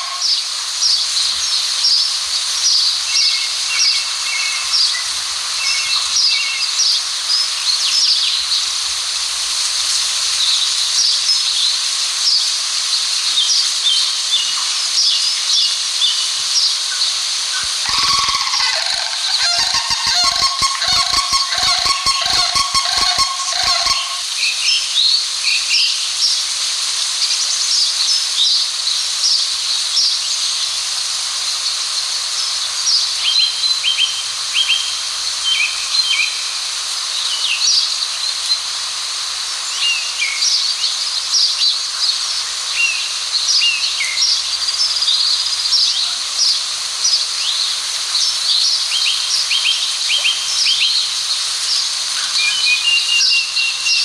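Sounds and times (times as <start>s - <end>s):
steady high hiss: 0.0s - 54.0s
small birds chirping: 17.0s - 24.2s.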